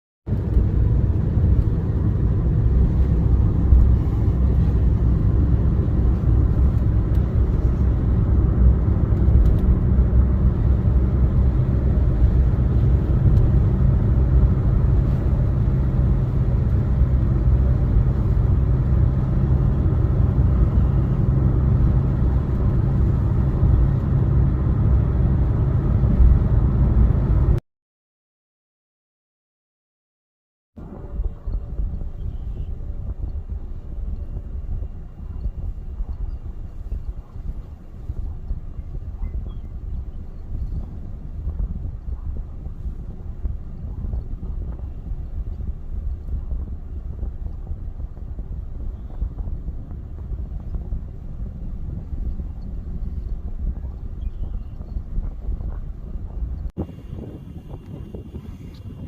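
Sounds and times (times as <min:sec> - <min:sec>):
car driving on road: 0:00.3 - 0:27.6, 0:30.8 - 0:59.0.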